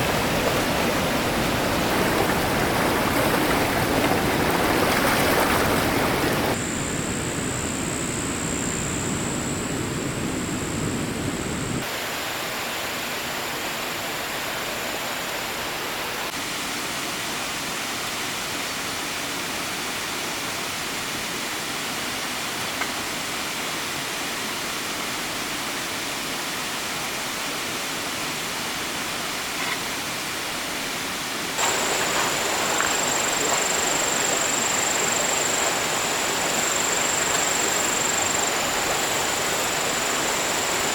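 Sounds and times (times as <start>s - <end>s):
stream running: 0.0s - 6.6s, 11.8s - 40.9s.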